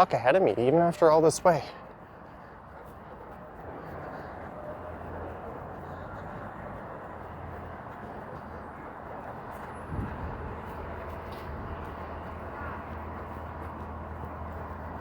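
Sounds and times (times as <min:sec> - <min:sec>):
city street traffic hum: 0:00.0 - 0:15.0.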